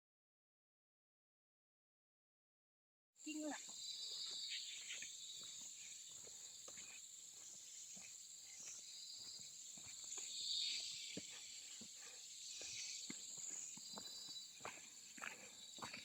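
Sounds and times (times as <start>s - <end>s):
insect chorus buzzing: 3.2s - 16.0s
footsteps on forest floor: 3.3s - 16.0s.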